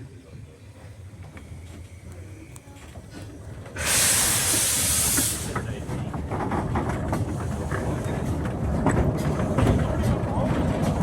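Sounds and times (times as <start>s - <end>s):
train rumbling: 0.0s - 11.0s
steam locomotive hissing: 3.7s - 6.0s.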